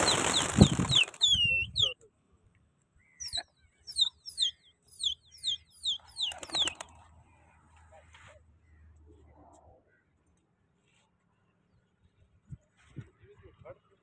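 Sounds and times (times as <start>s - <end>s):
small bird chirping: 0.0s - 2.0s, 3.0s - 7.0s.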